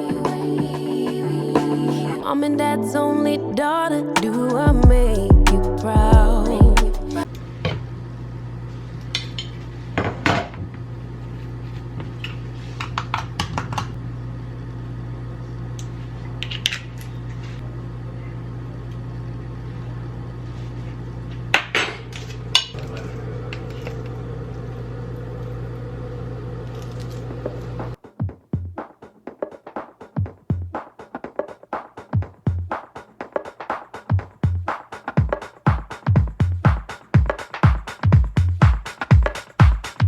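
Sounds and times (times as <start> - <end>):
steady low hum: 0.0 - 7.3.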